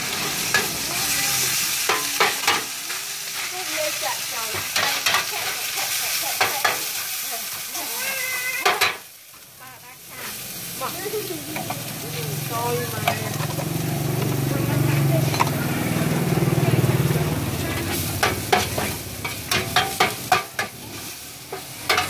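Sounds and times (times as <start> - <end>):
noodles sizzling in oil: 0.0 - 22.0
metal spatula scraping a pan: 0.1 - 9.1, 17.6 - 22.0.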